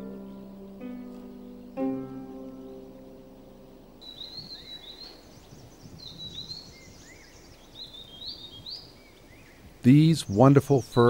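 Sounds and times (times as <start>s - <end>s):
plucked-string music: 0.0s - 4.0s
birds chirping: 0.0s - 11.0s
faint outdoor background: 0.0s - 11.0s.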